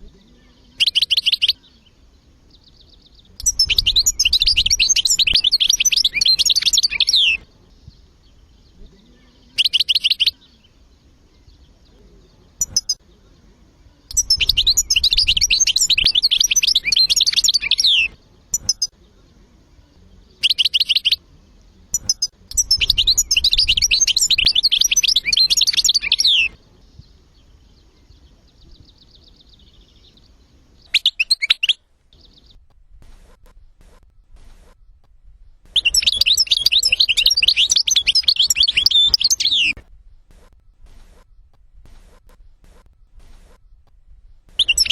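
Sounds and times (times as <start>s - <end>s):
short bird calls: 0.0s - 44.9s
goldfinch twittering: 2.6s - 7.4s, 14.1s - 18.9s, 22.0s - 32.6s, 35.7s - 39.8s, 44.5s - 44.9s.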